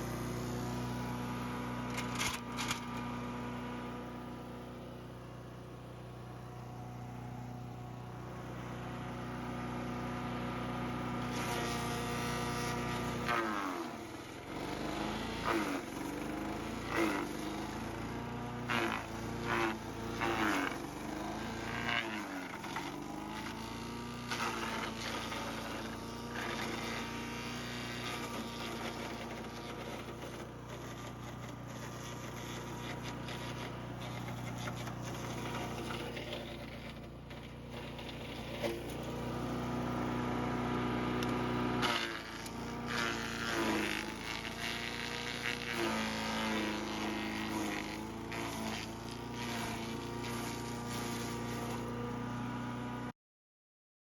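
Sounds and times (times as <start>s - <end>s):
wood chipper engine running: 0.0s - 53.1s
branches being chipped: 26.3s - 39.2s.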